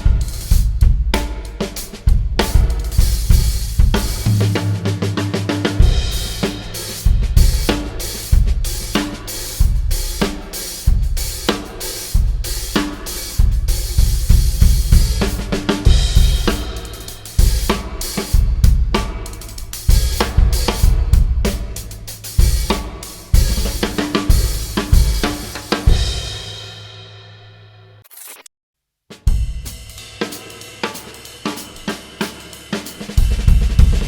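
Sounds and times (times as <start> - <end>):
drum kit groove: 0.0 - 27.2, 29.1 - 34.0
held low notes: 4.2 - 6.6
cymbals ringing: 4.2 - 7.7.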